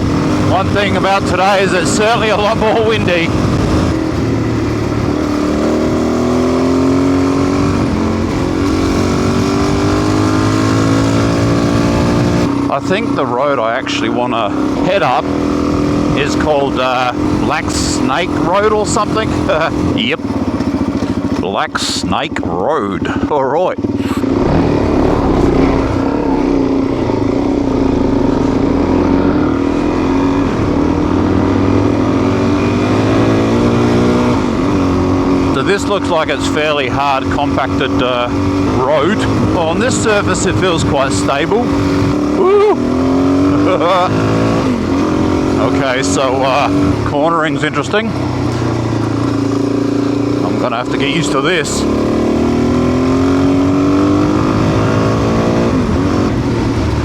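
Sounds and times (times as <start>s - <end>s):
motorcycle engine revving: 0.0s - 57.0s
wind noise on microphone: 41.6s - 42.3s.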